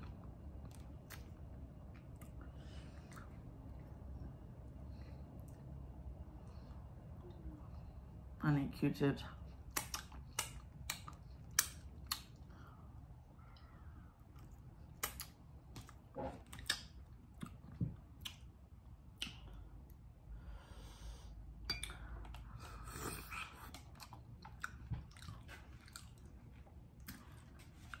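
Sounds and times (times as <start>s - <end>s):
chewing: 0.0s - 5.8s, 9.7s - 12.7s, 13.4s - 18.5s, 21.9s - 28.0s
lip smacks and sucking: 9.7s - 12.5s, 19.1s - 19.6s.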